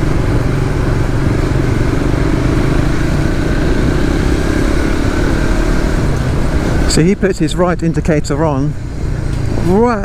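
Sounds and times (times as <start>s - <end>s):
motorcycle engine running: 0.0s - 7.8s
low road and wind rumble: 0.0s - 10.0s.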